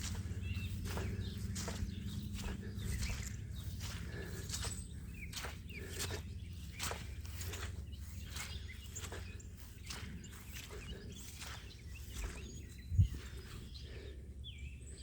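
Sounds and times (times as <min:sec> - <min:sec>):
footsteps on wet ground: 0:00.0 - 0:14.2
small birds chirping: 0:00.0 - 0:15.0.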